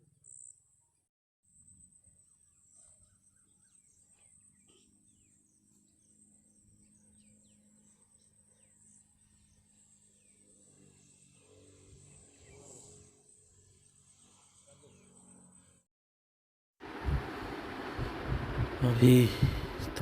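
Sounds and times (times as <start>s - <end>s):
high-pitched insect drone: 9.1s - 15.8s.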